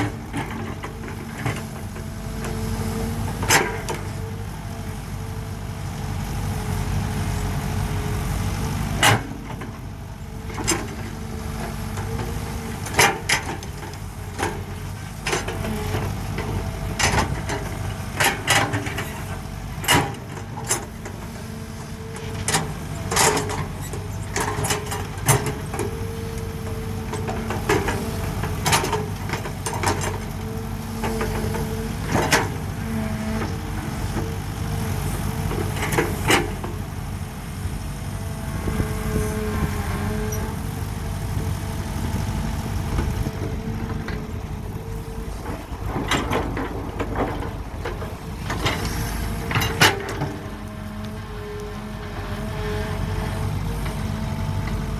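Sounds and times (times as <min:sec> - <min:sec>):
excavator diesel engine running: 0:00.0 - 0:54.9
machine clanks and knocks: 0:45.3 - 0:50.4.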